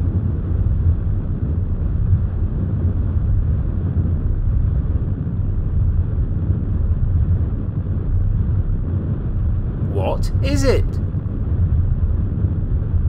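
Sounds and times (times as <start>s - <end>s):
deep rocket rumble: 0.0s - 9.9s.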